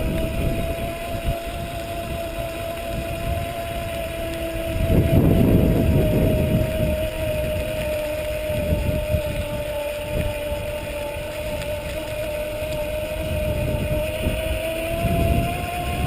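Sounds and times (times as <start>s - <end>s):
electric bike motor whining: 0.0s - 16.0s
wind rumble on microphone: 0.0s - 16.0s.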